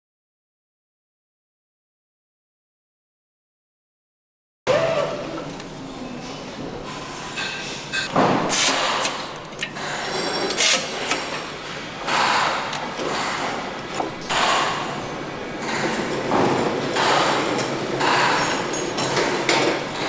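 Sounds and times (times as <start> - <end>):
metallic clicks and clanks: 7.4 - 11.4
air tools hissing: 7.9 - 9.2.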